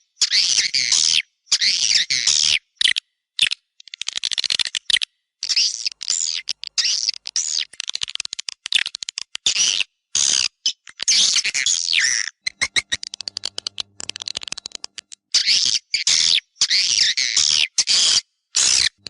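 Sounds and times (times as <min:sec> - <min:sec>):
dry clicks: 0:05.8 - 0:09.5, 0:12.5 - 0:15.2.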